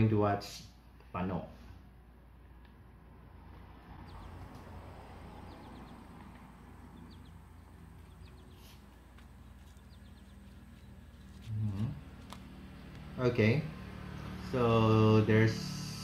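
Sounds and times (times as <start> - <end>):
bird chirps: 3.9 - 13.1.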